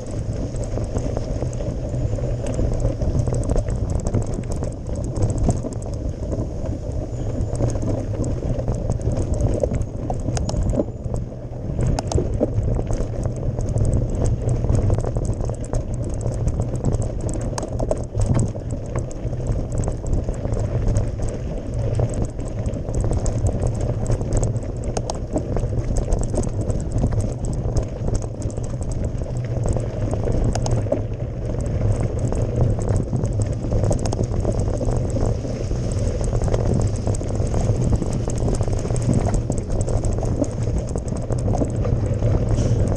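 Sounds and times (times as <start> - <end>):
bike clicks and rattles: 0.0 - 42.9
bike tyres crunching over gravel: 0.0 - 42.9
steady low rumble: 0.0 - 42.9.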